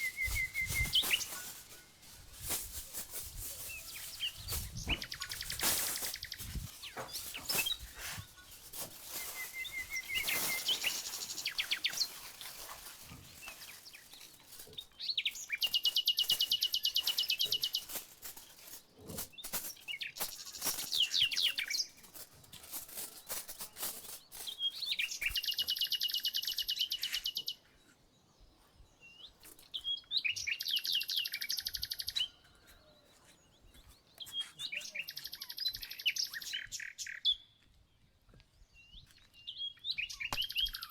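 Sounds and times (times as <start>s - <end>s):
songbird singing rapid trills: 28.6s - 37.6s.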